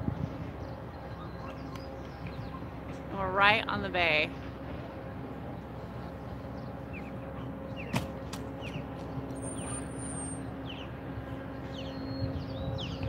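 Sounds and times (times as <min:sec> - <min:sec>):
low outdoor background hum: 0:00.0 - 0:13.0.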